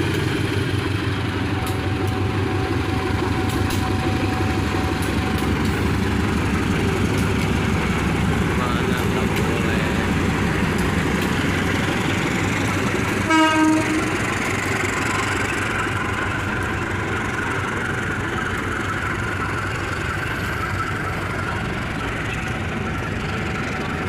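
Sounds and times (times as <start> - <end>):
train wheels rumbling on rails: 0.0 - 24.0
train horn blast: 13.2 - 14.3.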